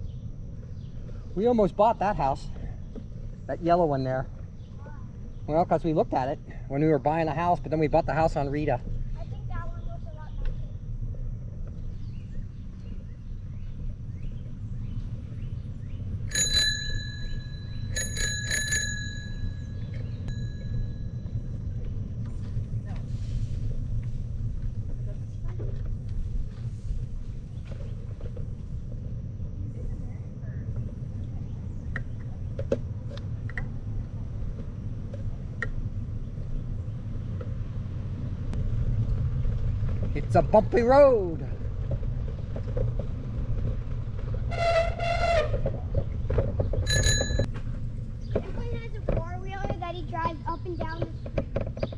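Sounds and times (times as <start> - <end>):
bicycle rumbling: 0.0 - 51.9
bicycle bell ringing: 16.3 - 21.3, 46.9 - 47.5
bike clicks and rattles: 16.3 - 22.5, 41.7 - 51.9.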